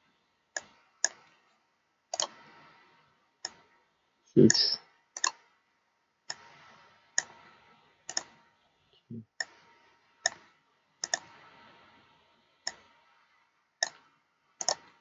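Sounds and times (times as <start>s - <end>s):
computer mouse clicks: 0.6s - 1.3s, 2.1s - 2.4s, 3.4s - 3.6s, 4.5s - 5.4s, 6.3s - 7.4s, 8.1s - 8.4s, 9.4s - 9.6s, 10.2s - 11.4s, 12.7s - 12.9s, 13.8s - 15.0s.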